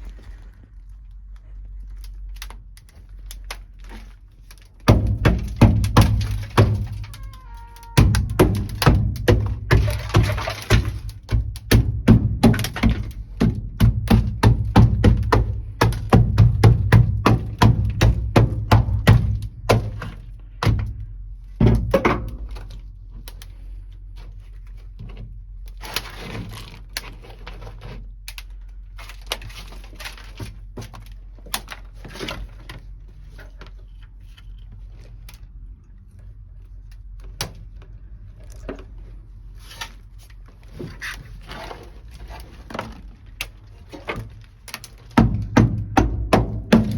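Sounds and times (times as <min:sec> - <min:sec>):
material cracking: 0:00.0 - 0:46.9
scraping: 0:38.1 - 0:45.7.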